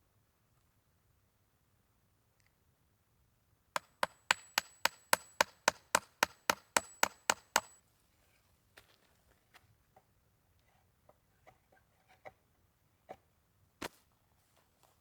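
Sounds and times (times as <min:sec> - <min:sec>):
sharp knocks: 0:03.8 - 0:07.8.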